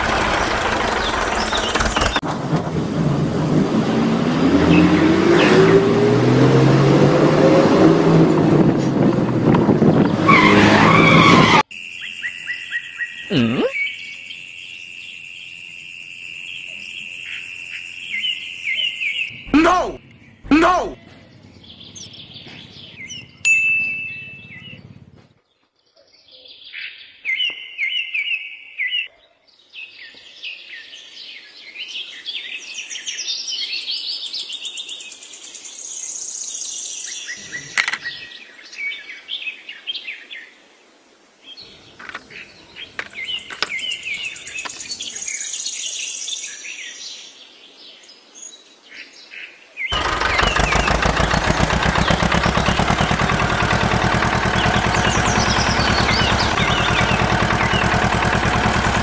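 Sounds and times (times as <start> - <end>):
birds chirping: 0.0 - 2.2, 3.8 - 15.2, 16.5 - 25.3, 37.2 - 38.4, 41.6 - 45.6, 49.9 - 59.0.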